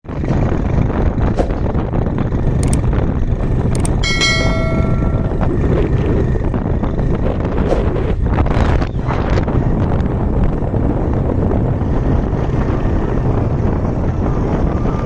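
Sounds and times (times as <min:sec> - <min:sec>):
wind buffeting microphone: 0:00.0 - 0:15.0
sudden ringing tone: 0:03.8 - 0:06.0.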